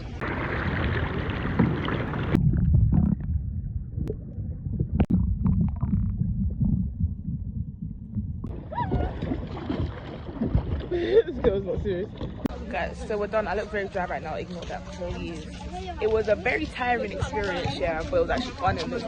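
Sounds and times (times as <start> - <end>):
wind and water rushing: 0.0 - 2.4
wind buffeting microphone: 0.0 - 13.6.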